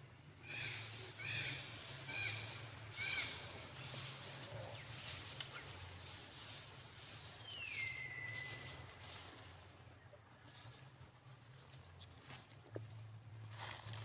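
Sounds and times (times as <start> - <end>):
light rustling and scuffling: 3.4 - 14.0.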